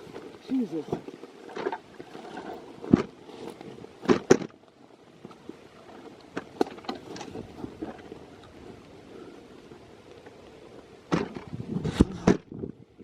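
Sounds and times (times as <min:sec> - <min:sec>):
steady low hiss: 0:00.0 - 0:13.0
sharp thuds and clicks: 0:11.1 - 0:12.8.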